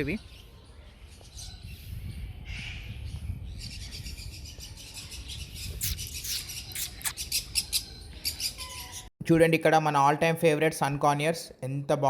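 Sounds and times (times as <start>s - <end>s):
small birds chirping and twittering: 0.0s - 9.1s.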